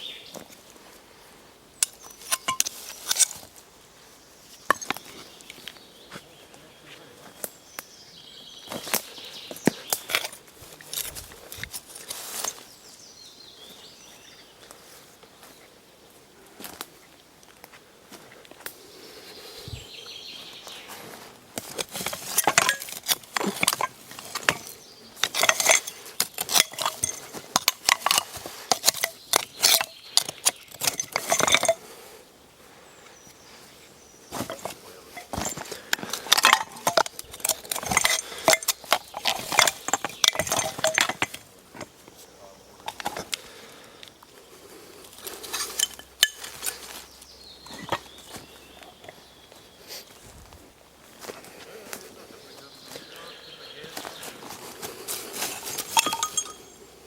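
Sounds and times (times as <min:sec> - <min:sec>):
metal objects clinking: 0:01.8 - 0:03.5, 0:04.7 - 0:05.1, 0:12.1 - 0:12.6, 0:21.6 - 0:31.8, 0:34.3 - 0:41.9, 0:45.2 - 0:46.8, 0:47.7 - 0:48.2, 0:55.4 - 0:56.8.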